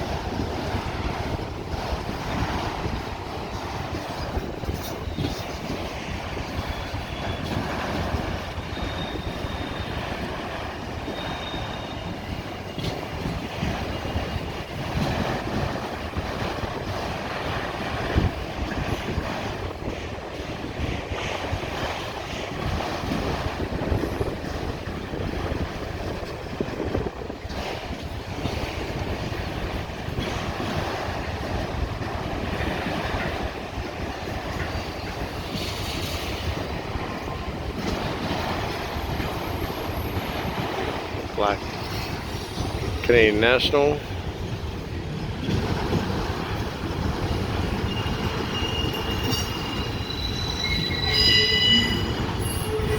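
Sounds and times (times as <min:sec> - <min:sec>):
train wheels clattering on track: 0:00.0 - 0:52.9
high-pitched squeals: 0:47.8 - 0:52.9.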